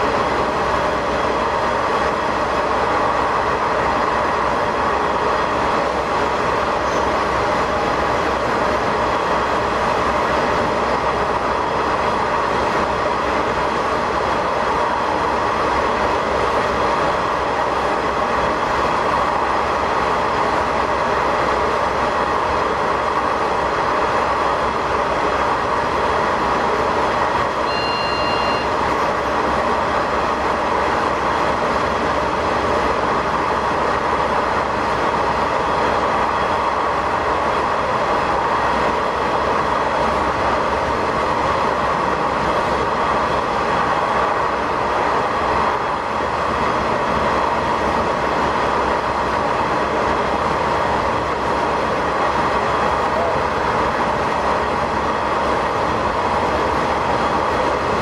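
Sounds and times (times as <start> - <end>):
railcar rumbling in a tunnel: 0.0 - 58.0
high-pitched tone: 27.6 - 28.8.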